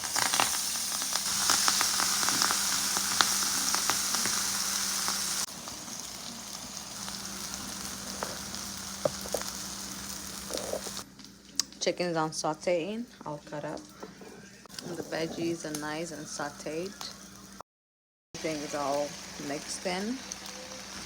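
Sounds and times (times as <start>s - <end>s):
food sizzling in frying pan: 0.0s - 11.4s, 14.7s - 17.6s, 18.4s - 21.0s.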